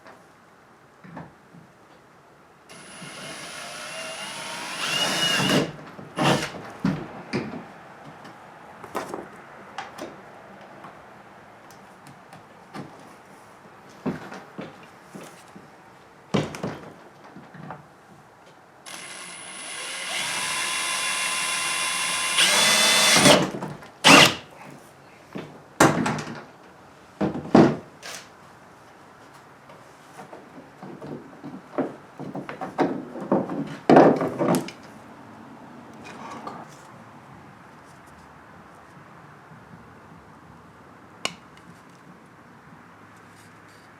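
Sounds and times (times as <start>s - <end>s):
cordless drill whirring: 2.7s - 6.6s, 18.9s - 24.4s.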